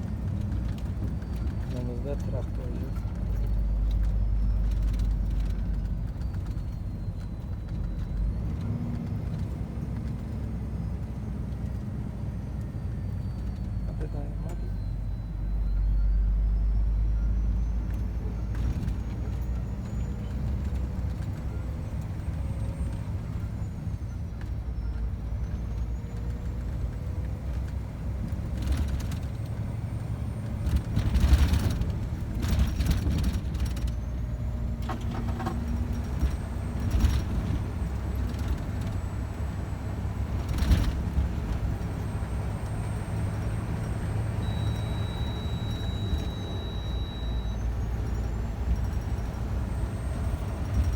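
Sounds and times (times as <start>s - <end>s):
truck diesel engine droning: 0.0s - 50.9s
faint whistle: 13.2s - 18.5s, 44.3s - 48.5s.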